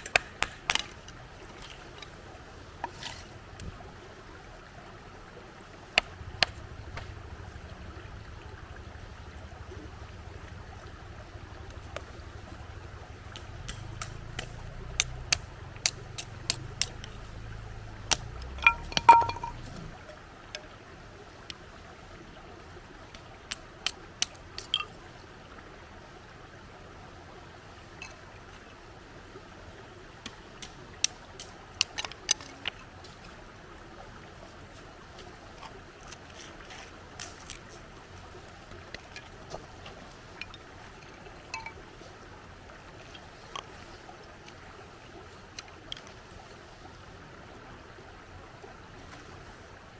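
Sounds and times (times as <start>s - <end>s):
sharp clicks and pops: 0.0s - 1.8s, 13.3s - 17.3s
campfire wood crackling: 0.0s - 4.6s, 5.2s - 20.8s, 23.0s - 25.0s, 29.9s - 47.0s
river water flowing: 0.0s - 49.9s
metallic clink: 18.6s - 19.9s.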